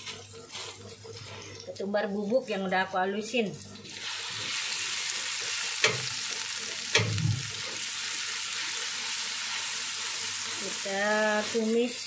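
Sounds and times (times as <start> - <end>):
paste sizzling in oil: 3.8 - 12.0
spatula knocking wok: 5.7 - 7.9.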